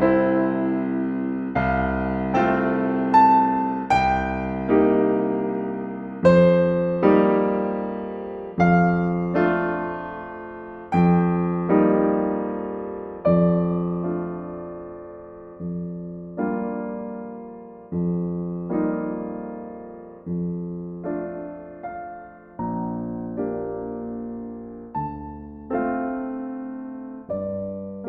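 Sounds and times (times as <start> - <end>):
slow gentle piano piece: 0.0 - 28.0.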